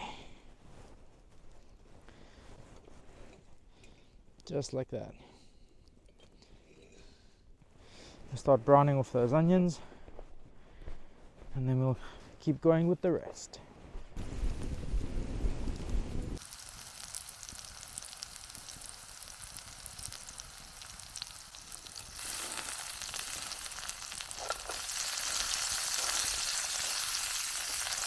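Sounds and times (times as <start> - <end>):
low rumble: 14.1 - 16.4
onions sizzling in a pot: 15.6 - 28.0.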